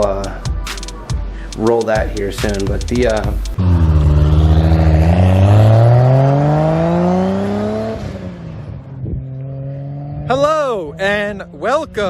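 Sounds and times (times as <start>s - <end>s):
car engine accelerating: 3.5s - 11.6s.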